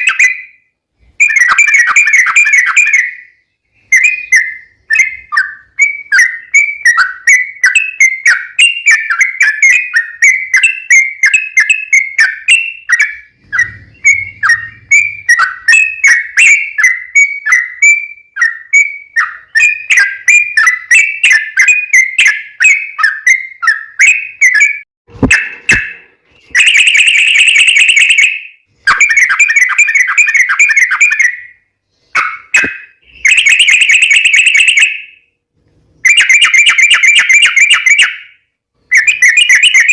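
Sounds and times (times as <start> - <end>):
bird singing bubbly notes: 1.2 - 31.6.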